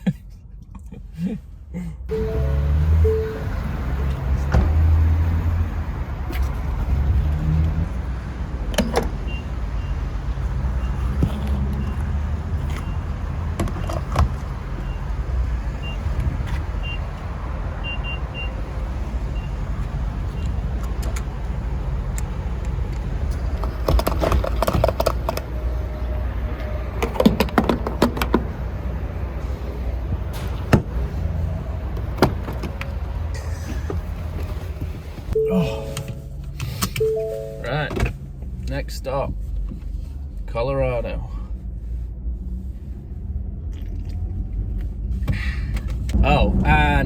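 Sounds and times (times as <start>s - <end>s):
truck engine rumble: 0.0s - 40.5s
clicks and rattles: 22.9s - 25.5s.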